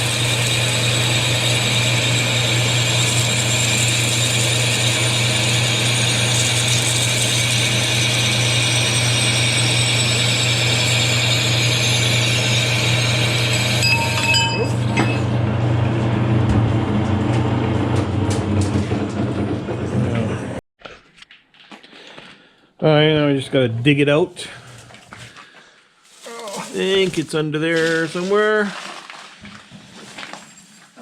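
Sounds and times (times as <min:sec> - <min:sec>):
high cutting whine: 0:00.0 - 0:15.8
lathe machine hum: 0:00.0 - 0:20.6
high tone dropping in pitch: 0:13.8 - 0:15.4.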